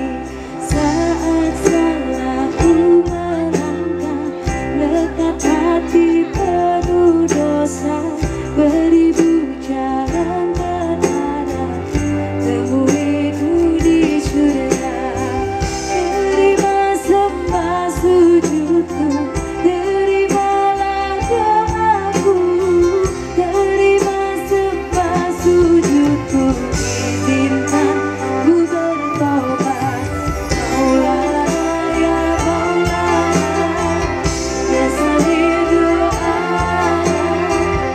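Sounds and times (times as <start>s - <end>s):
bass: 0.0s - 37.9s
woman singing: 0.0s - 37.9s
steady drum beat: 10.1s - 37.9s.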